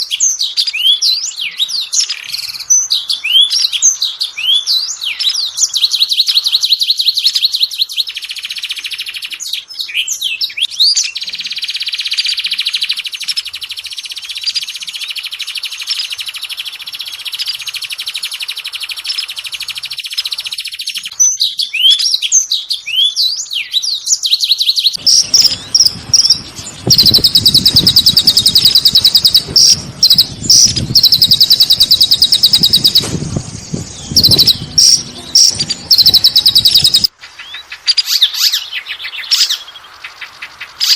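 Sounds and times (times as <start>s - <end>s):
recorded songbird trills: 0.0s - 40.9s
low rushing noise: 25.0s - 37.1s.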